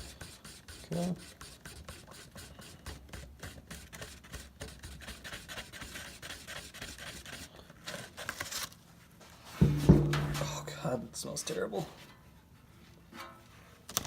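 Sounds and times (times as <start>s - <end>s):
stick scraping while mixing epoxy: 0.0s - 8.1s.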